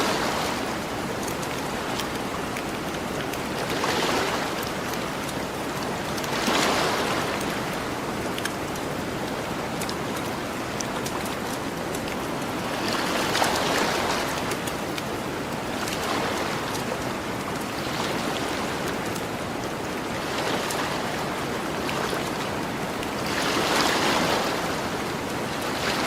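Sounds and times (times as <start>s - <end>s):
ocean waves washing onto beach: 0.0s - 26.0s.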